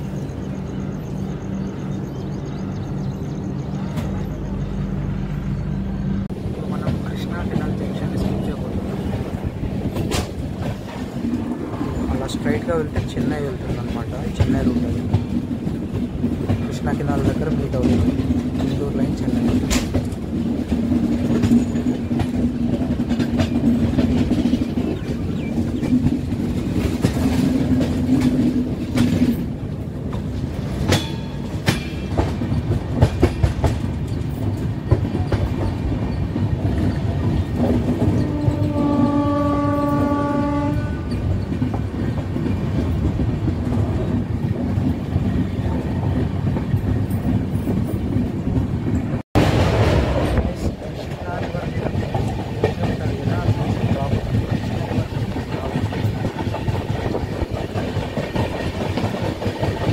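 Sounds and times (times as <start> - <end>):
train rumbling on rails: 0.0 - 59.9
wheels clacking over rail joints: 6.3 - 59.9
train horn: 38.0 - 41.3.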